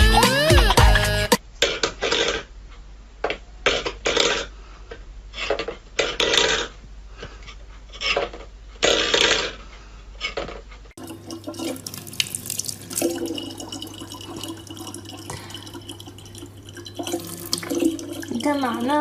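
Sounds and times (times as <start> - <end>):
tap water running into sink: 11.0 - 19.0.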